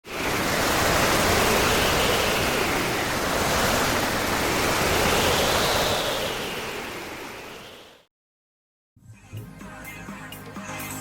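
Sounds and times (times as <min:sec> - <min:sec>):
sea waves rushing: 0:00.0 - 0:08.1.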